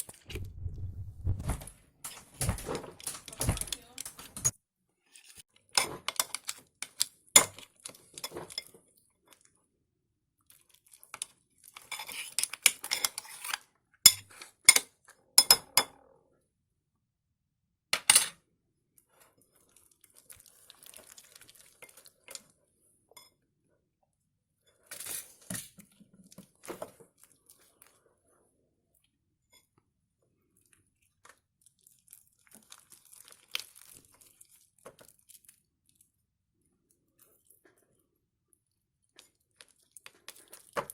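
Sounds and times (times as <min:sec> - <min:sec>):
crinkling: 0:00.0 - 0:04.6, 0:31.2 - 0:36.0
utensil clinking and scraping in a bowl: 0:01.5 - 0:04.6, 0:05.2 - 0:08.9, 0:11.0 - 0:15.9, 0:24.7 - 0:27.0.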